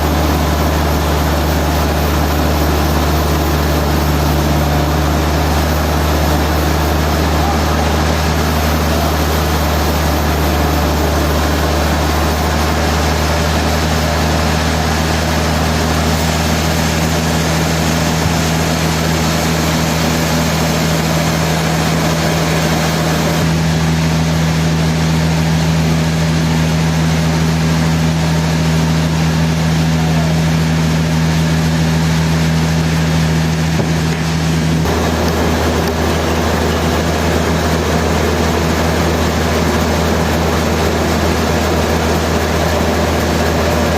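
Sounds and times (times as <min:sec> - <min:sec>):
sawmill machinery running: 0:00.0 - 0:43.9.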